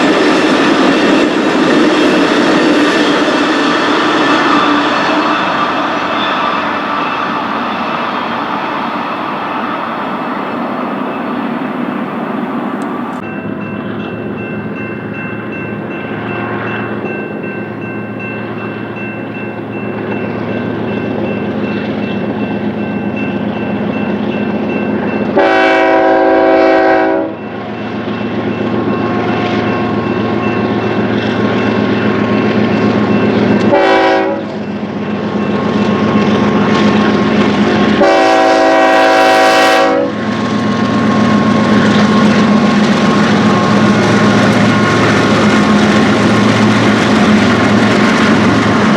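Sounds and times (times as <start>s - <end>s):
diesel locomotive engine rumble: 0.0s - 48.9s
locomotive horn blasts: 25.4s - 27.5s, 33.6s - 34.6s, 38.0s - 40.2s.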